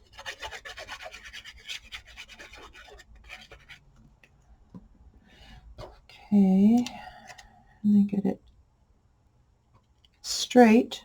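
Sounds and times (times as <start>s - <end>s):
scratchy rubbing on paper: 0.0s - 3.9s.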